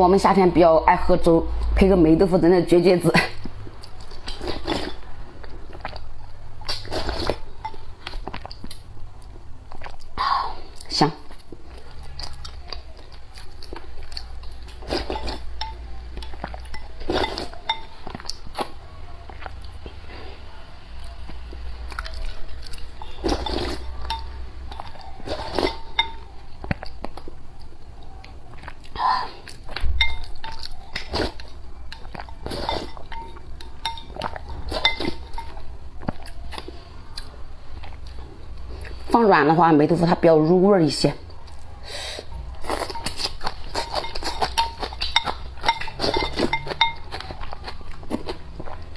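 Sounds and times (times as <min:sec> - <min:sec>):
utensils clinking against dish: 0:16.4 - 0:18.2, 0:23.0 - 0:26.3, 0:30.0 - 0:35.7, 0:42.7 - 0:48.8.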